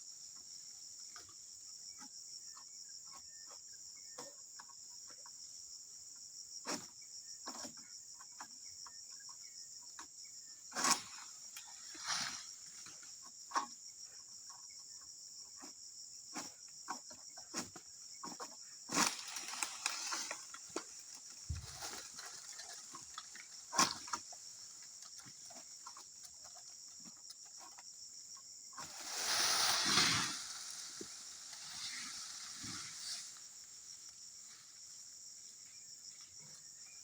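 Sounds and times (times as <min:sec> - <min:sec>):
high insect chorus: 0:00.0 - 0:37.0
rustling: 0:18.9 - 0:24.4, 0:28.8 - 0:33.9.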